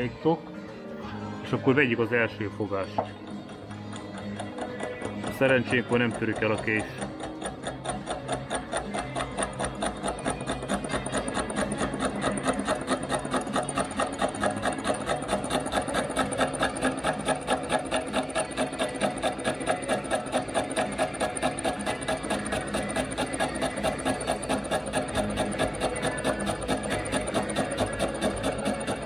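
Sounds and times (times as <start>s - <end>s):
line-boring machine chattering: 1.5s - 29.0s.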